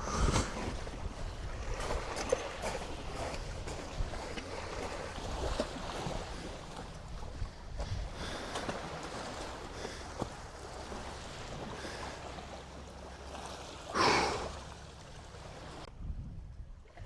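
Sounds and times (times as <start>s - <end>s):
wind rumbling on microphone: 0.0s - 9.7s, 15.9s - 17.0s
sea waves washing on shore: 0.0s - 15.9s.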